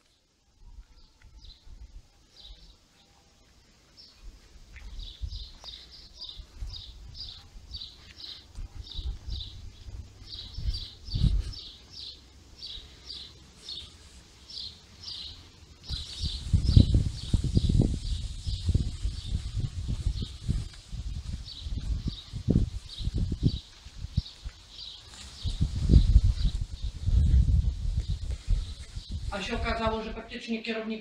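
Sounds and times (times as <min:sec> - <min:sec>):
small bird chirping: 0:04.0 - 0:29.3
low rumbling on microphone: 0:04.8 - 0:13.0, 0:15.3 - 0:24.5, 0:25.4 - 0:30.2.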